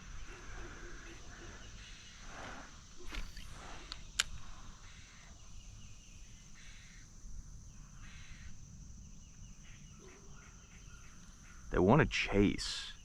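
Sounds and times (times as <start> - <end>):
insects droning: 0.0 - 13.0
sharp click: 3.1 - 4.4.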